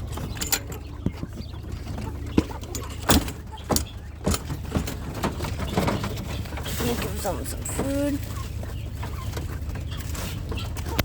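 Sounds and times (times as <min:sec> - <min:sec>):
cage knocking and clattering: 0:00.0 - 0:06.7.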